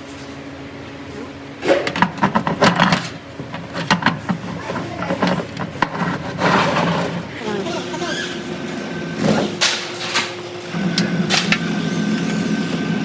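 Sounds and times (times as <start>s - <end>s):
sharp clicks and knocks: 9.6s - 12.8s.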